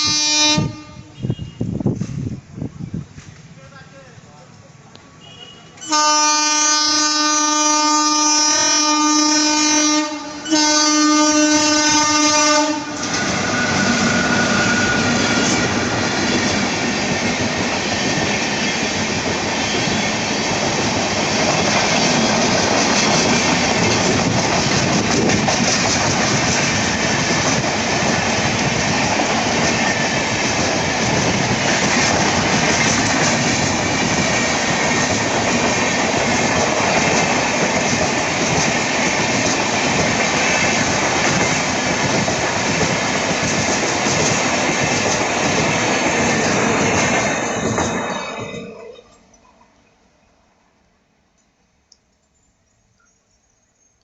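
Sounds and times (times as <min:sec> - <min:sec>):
locomotive horn blasts: 0:00.0 - 0:01.8, 0:05.2 - 0:15.6
train wheels clattering on rails: 0:13.0 - 0:48.7.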